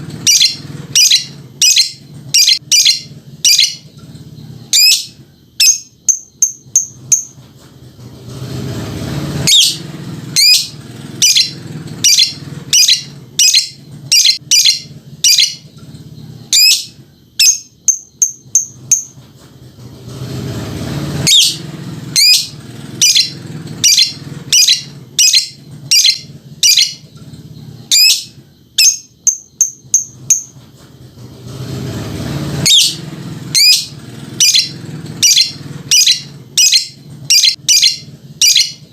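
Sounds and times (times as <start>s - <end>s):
lovebird shrill chirps: 0.2s - 3.8s, 4.7s - 7.3s, 10.4s - 15.6s, 16.5s - 19.1s, 22.2s - 27.0s, 27.9s - 30.5s, 32.6s - 38.8s.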